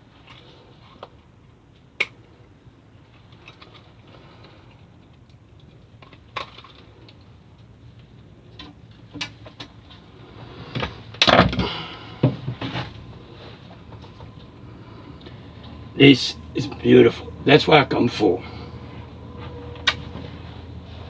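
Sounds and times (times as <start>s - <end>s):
thumps and rattling: 10.7s - 13.0s.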